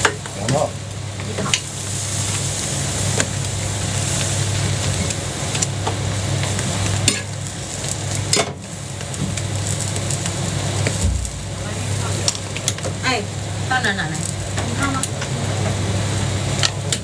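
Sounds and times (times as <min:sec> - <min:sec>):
utensils clicking on griddle: 0:00.0 - 0:11.0
batter sizzling on a griddle: 0:00.0 - 0:17.0.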